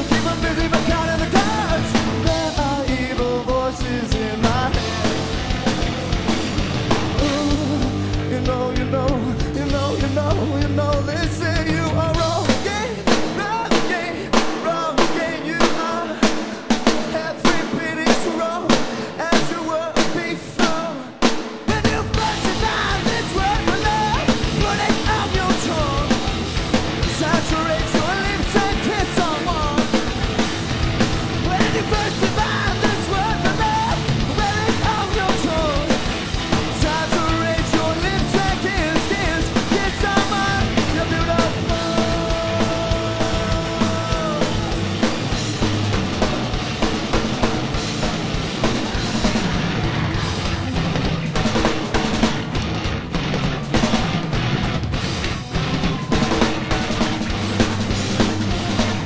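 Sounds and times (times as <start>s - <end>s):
person singing: 0.0s - 5.6s, 7.0s - 26.3s, 27.0s - 30.1s, 31.3s - 45.2s
drums beating: 0.0s - 59.0s
rock band playing: 0.0s - 59.0s.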